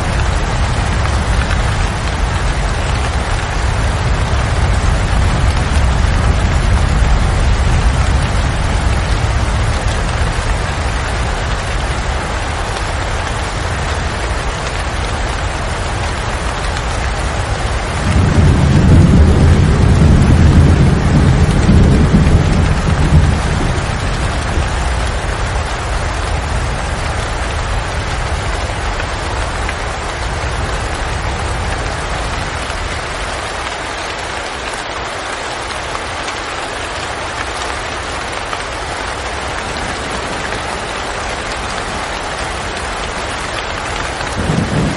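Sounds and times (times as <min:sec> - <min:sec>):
low rumble of thunder: 0:00.0 - 0:32.9, 0:44.2 - 0:44.9
steady rain falling: 0:00.0 - 0:44.9.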